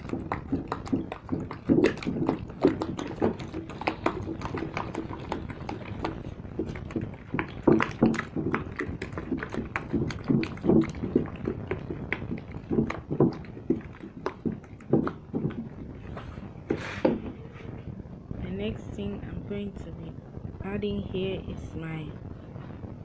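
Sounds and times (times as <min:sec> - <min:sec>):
thick liquid being stirred: 0:00.0 - 0:17.9.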